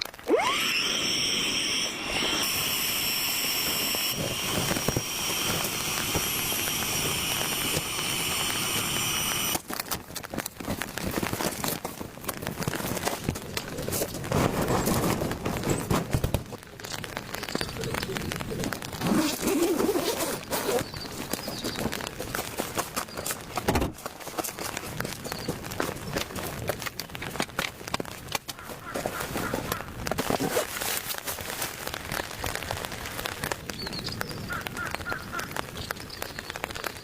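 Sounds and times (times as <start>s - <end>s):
small electric motor whining: 0.0s - 9.6s
rustling and crackling: 1.6s - 37.0s.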